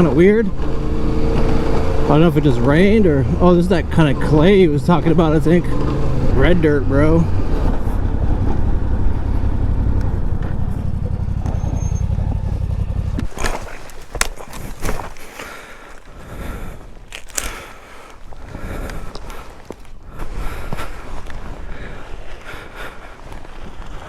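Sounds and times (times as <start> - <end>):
motorcycle engine running: 0.0 - 24.0
crunches and knocks on dirt: 11.5 - 24.0.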